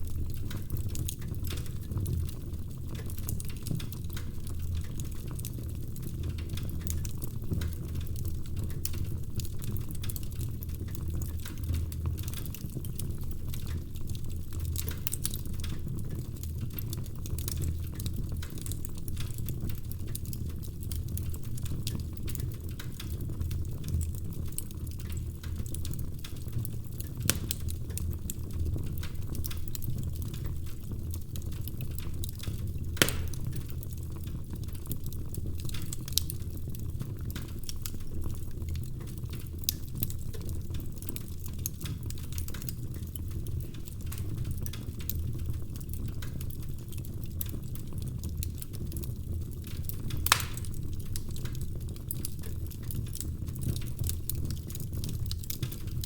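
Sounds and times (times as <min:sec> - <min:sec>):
wood fire crackling: 0:00.0 - 0:56.0
sharp pops of fire: 0:27.2 - 0:27.7, 0:32.9 - 0:33.8, 0:50.1 - 0:51.6.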